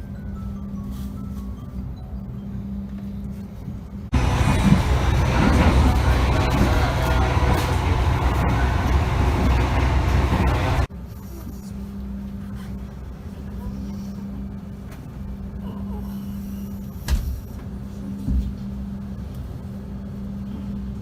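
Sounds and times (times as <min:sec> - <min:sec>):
train rumbling: 0:00.0 - 0:11.0
steady hum: 0:02.2 - 0:21.0.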